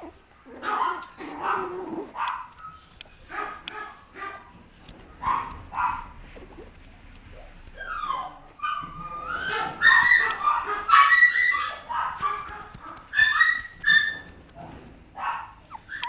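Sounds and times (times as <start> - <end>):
puppy yipping and whining: 0.0 - 2.8, 7.4 - 16.0.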